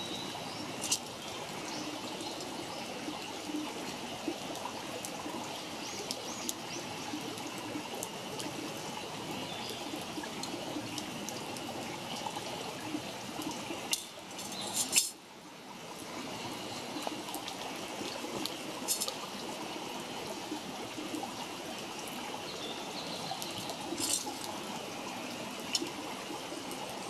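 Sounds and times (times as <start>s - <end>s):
campfire hissing: 0.3s - 27.0s
fire crackles and pops: 13.4s - 15.2s.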